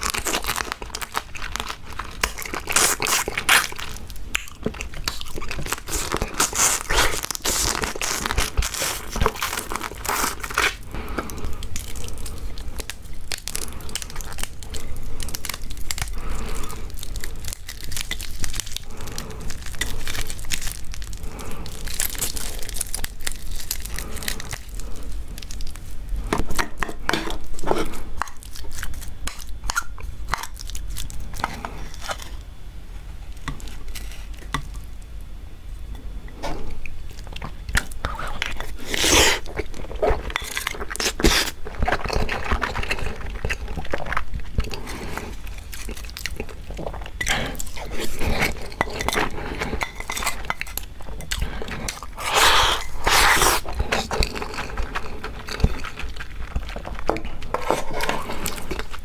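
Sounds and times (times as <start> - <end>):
chewing: 0.0 - 32.3, 36.3 - 59.0
crab shells crunching: 0.0 - 32.4, 36.8 - 59.0.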